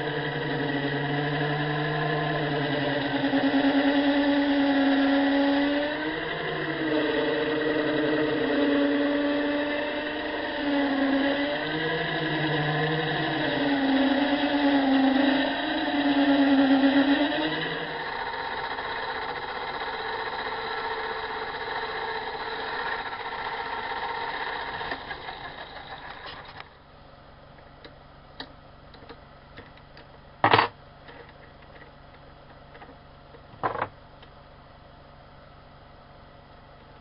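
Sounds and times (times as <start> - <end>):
machine tool motor running: 0.0 - 26.8.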